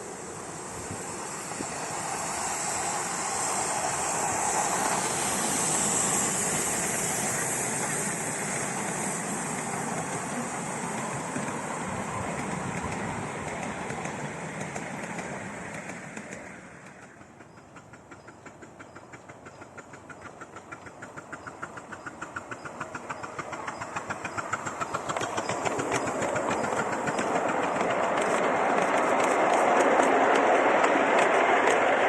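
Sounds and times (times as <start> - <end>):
steam locomotive chuffing: 0.0 - 32.0
train rushing clatter: 0.0 - 32.0.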